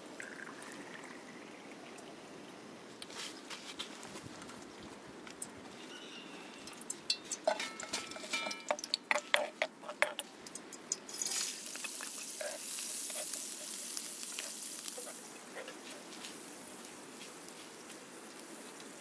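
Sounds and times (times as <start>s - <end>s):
food sizzling in hot oil: 5.9s - 19.0s
utensils clicking and knocking: 6.7s - 11.0s.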